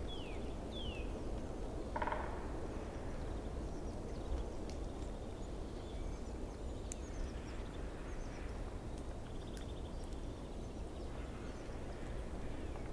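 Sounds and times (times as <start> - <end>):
small birds chirping: 3.6 - 12.8.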